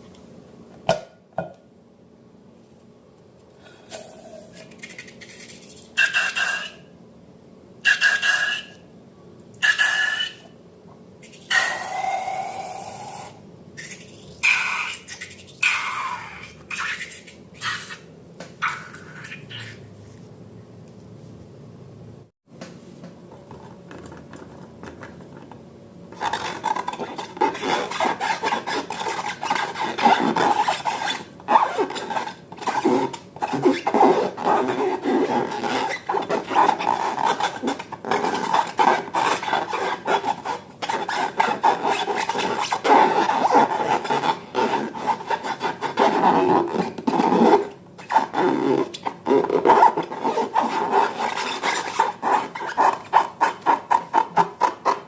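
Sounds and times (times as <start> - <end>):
hands rubbing balloons and slime: 26.2 - 55.0.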